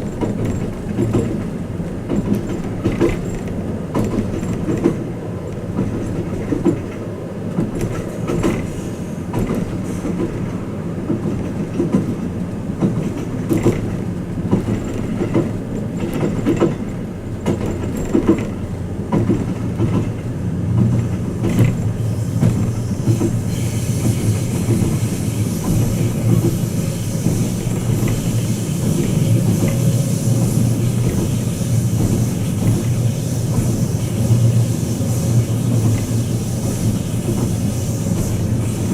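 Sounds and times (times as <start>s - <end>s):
train carriage rumble: 0.0s - 38.9s
wheels clicking over rails: 0.0s - 38.9s
high hiss: 21.9s - 38.9s.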